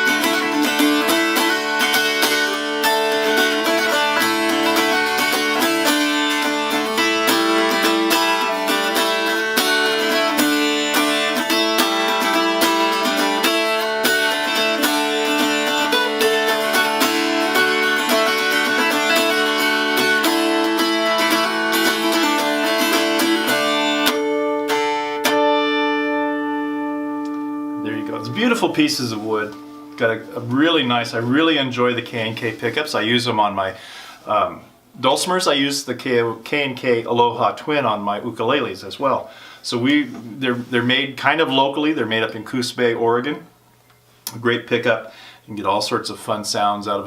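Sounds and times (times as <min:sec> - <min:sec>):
dulcimer picked melody: 0:00.0 - 0:30.4.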